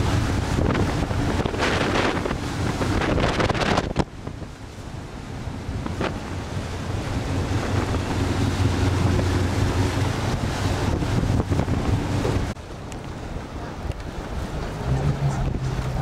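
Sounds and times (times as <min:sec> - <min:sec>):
water sounds: 0:00.0 - 0:16.0
wind buffeting microphone: 0:00.0 - 0:16.0.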